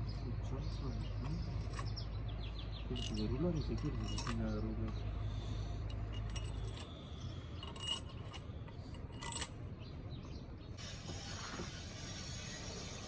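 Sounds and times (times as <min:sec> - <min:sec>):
low steady hum: 0:00.0 - 0:11.5
metal parts clinking: 0:00.7 - 0:02.0, 0:02.9 - 0:05.0, 0:05.8 - 0:09.6.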